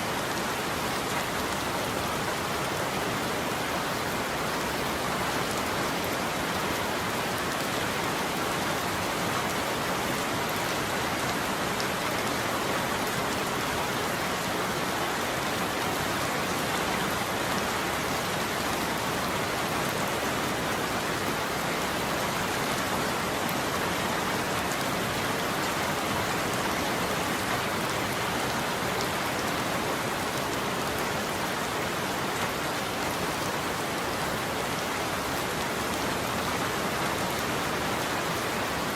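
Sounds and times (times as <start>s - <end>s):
rain on a roof: 0.0s - 38.9s.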